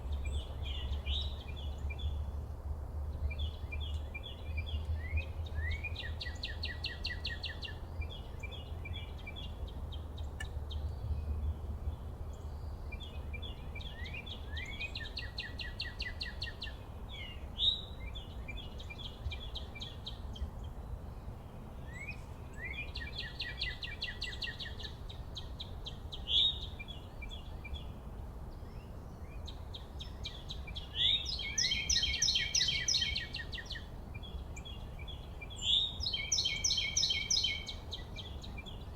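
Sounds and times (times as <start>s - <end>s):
songbird singing trilled song: 0.0s - 2.4s, 3.1s - 38.9s
low outdoor rumble: 7.7s - 36.2s.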